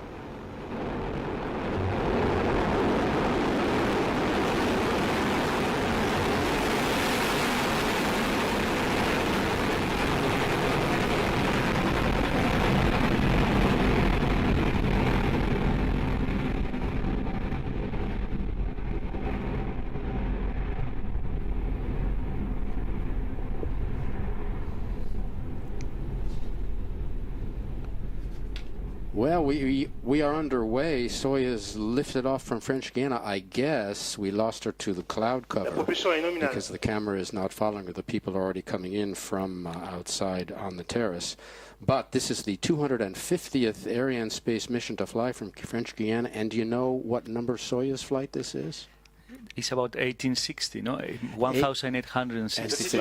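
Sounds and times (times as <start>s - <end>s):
low rumble with crackle: 0.0s - 33.2s
rocket engines roaring: 35.6s - 36.8s, 52.6s - 53.0s.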